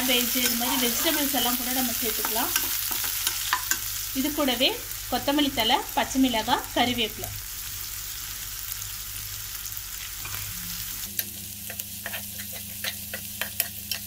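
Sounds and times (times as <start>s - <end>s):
vegetables sizzling in hot oil: 0.0s - 14.0s
spatula scraping and tapping pan: 2.1s - 3.9s, 11.1s - 14.0s.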